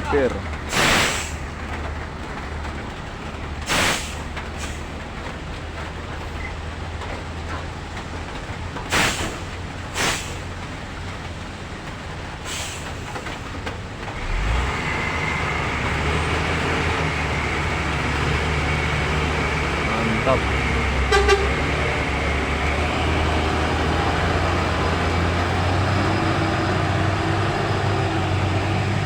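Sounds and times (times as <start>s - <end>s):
diesel truck engine running: 0.0s - 29.0s
air brake hisses: 0.7s - 1.4s, 3.7s - 4.8s, 8.9s - 9.4s, 10.0s - 10.5s, 12.5s - 13.1s.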